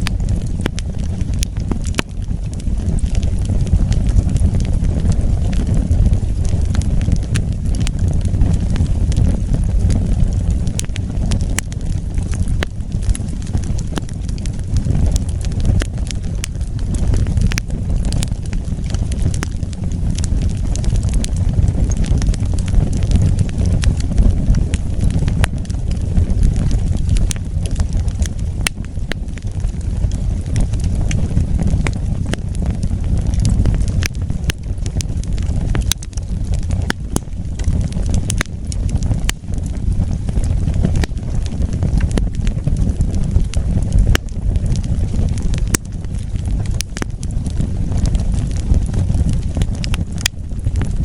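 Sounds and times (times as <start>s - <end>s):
low rumble of flames: 0.0s - 51.0s
wood crackling and popping: 0.0s - 51.0s.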